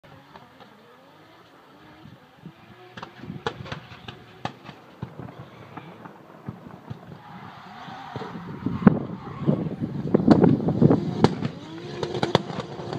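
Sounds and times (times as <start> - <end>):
car engine revving: 0.1 - 12.9
sharp exhaust pops: 3.0 - 7.1, 10.2 - 12.9.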